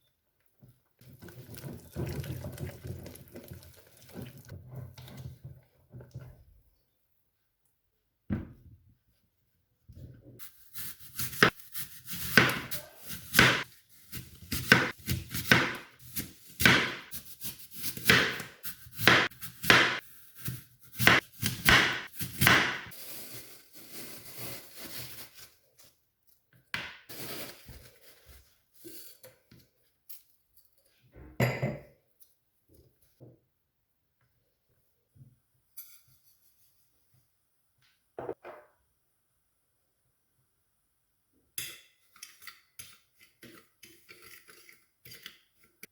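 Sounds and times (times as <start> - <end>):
knocks and scrapes of food preparation: 0.6 - 6.6, 41.8 - 45.9.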